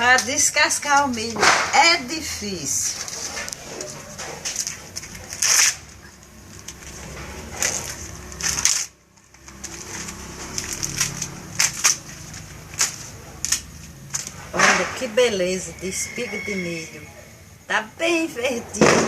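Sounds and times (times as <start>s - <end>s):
corn husks being torn: 3.0s - 14.5s.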